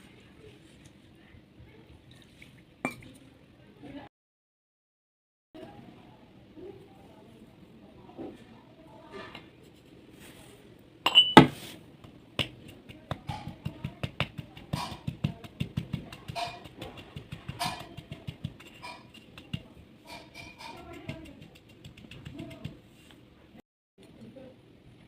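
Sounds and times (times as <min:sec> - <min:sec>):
baked clay crunching and crumbling: 0:11.5 - 0:23.2.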